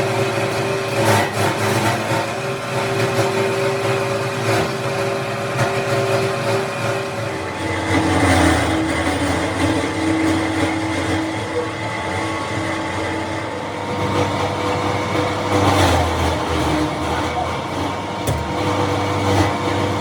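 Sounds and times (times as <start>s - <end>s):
industrial machinery hum: 0.0s - 20.0s
steady tones: 17.8s - 20.0s.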